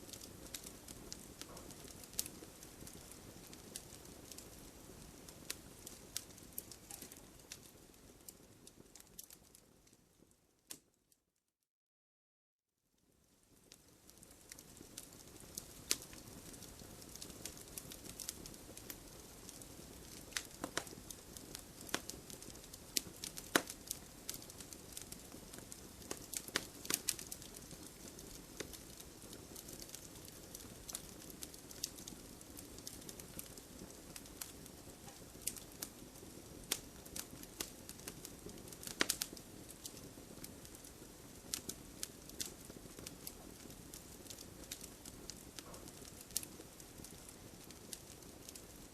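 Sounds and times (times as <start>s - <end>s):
low rush of flame: 0.0s - 9.3s
wood fire crackling and popping: 0.0s - 10.9s, 13.0s - 48.9s.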